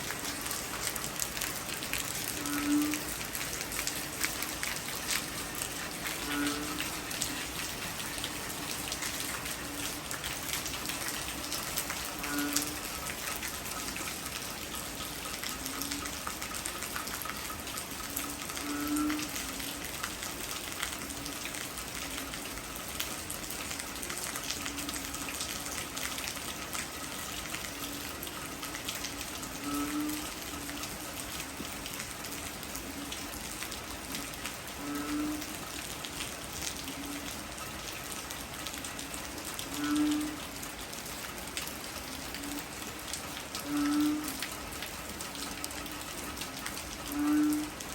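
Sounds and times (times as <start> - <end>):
heavy rain patter: 0.0 - 47.9.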